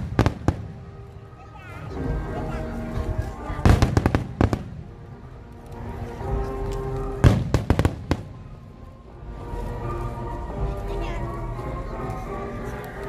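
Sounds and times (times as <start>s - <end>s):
fireworks bangs: 0.0s - 1.0s, 3.6s - 5.0s, 7.0s - 8.6s
music playing: 0.0s - 13.0s.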